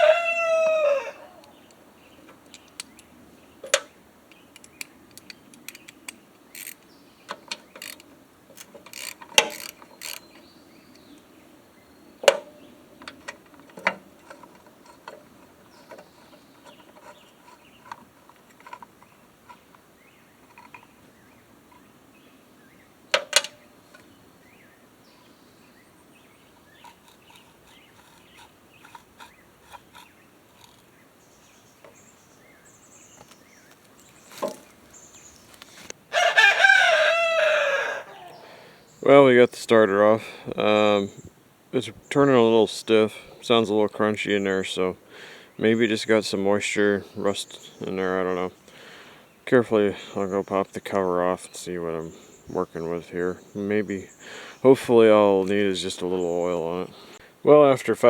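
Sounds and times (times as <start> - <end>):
hand tools clanking on metal: 3.6 - 3.9, 6.6 - 11.1, 12.2 - 20.9, 23.1 - 24.0, 26.6 - 30.9
wrench ratcheting clicks: 4.6 - 6.8, 7.4 - 10.3, 26.8 - 30.8.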